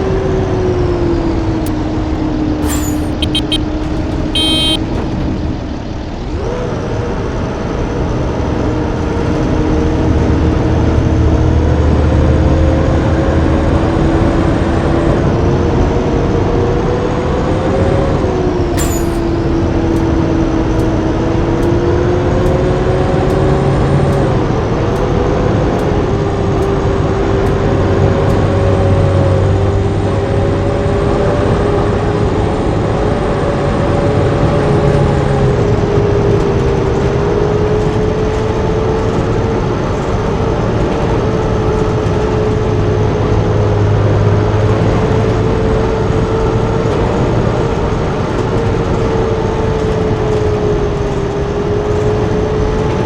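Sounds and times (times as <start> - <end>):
bus engine drone: 0.0 - 53.0
road noise: 0.0 - 53.0
light regular ticking: 18.8 - 28.7.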